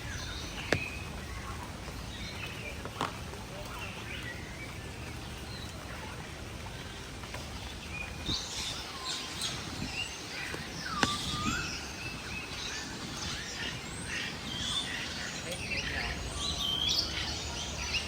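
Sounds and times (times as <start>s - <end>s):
birds chirping and whistling: 7.9s - 18.0s.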